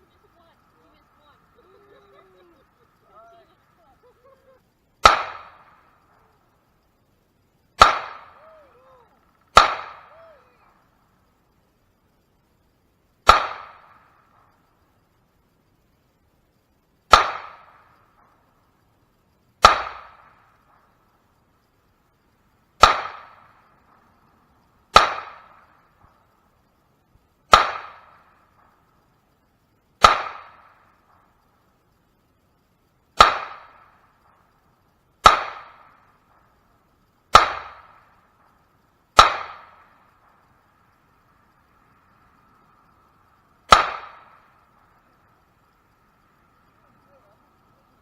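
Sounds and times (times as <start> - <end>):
pistol shots: 5.0 - 6.0, 7.8 - 8.4, 9.4 - 10.3, 13.2 - 14.4, 17.1 - 18.4, 19.6 - 20.9, 22.8 - 24.0, 24.9 - 26.2, 27.5 - 28.8, 30.0 - 31.3, 33.2 - 34.4, 35.2 - 36.5, 37.3 - 38.6, 39.2 - 40.4, 43.7 - 44.5.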